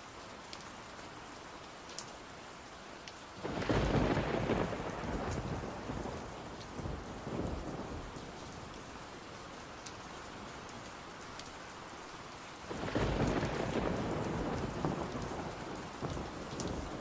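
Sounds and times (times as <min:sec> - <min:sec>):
rain falling: 0:00.0 - 0:17.0
thunder rumbling: 0:03.4 - 0:08.3, 0:12.7 - 0:17.0.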